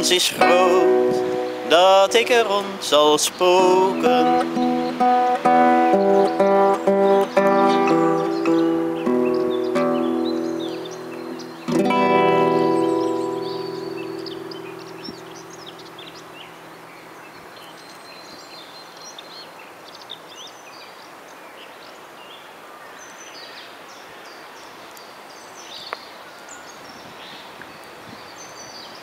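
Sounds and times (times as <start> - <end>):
acoustic guitar chord strummed: 0.0 - 17.1
birds chirping and singing: 0.0 - 21.0.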